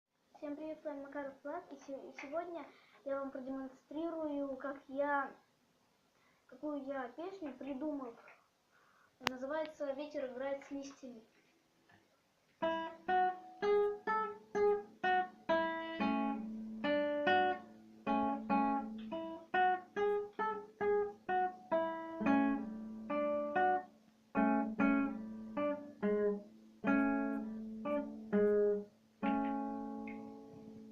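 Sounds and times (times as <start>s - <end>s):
acoustic guitar playing: 12.6s - 30.9s.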